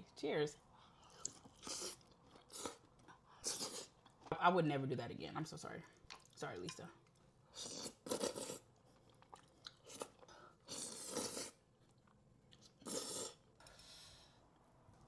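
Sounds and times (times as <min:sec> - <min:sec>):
person crunching and chewing: 0:07.6 - 0:13.4.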